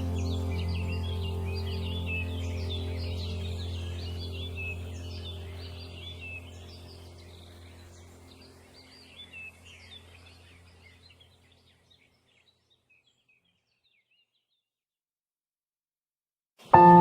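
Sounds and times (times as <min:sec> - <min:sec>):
steady low hum: 0:00.0 - 0:10.5
small birds chirping and trilling: 0:00.0 - 0:14.7.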